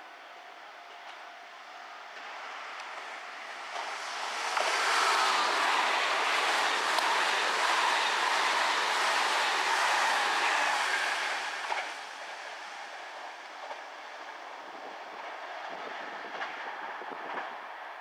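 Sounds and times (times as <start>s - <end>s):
electric train running past: 0.0s - 18.0s
wheels clacking over rail joints: 2.2s - 12.4s.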